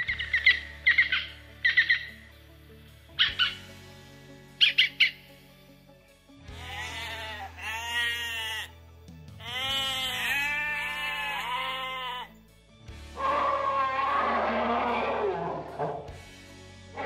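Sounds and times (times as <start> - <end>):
sheep bleating: 6.5 - 12.4, 13.2 - 15.1.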